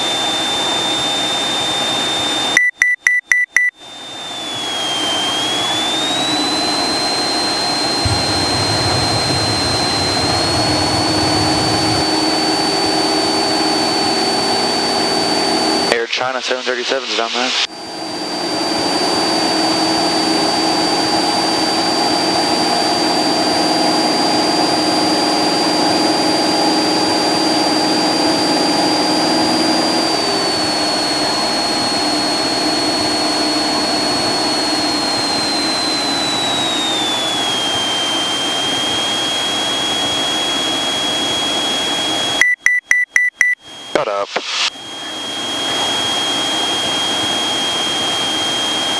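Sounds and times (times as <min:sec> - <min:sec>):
airplane engine and propeller droning: 0:00.0 - 0:02.6, 0:03.8 - 0:42.4, 0:43.6 - 0:48.9
short beeps: 0:02.5 - 0:03.8, 0:42.4 - 0:46.6
high whine: 0:03.8 - 0:48.9.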